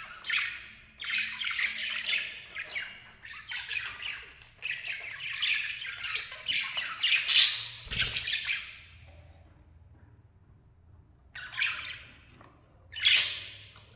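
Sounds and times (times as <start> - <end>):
lovebirds squawking and chirping: 0.0 - 8.9, 11.4 - 12.3, 12.9 - 13.8.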